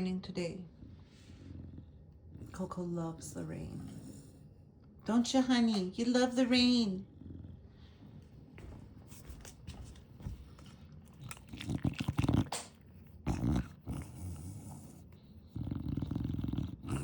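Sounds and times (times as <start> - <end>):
dog snorting and snoring: 0.7 - 4.5, 7.0 - 8.8, 10.4 - 17.0.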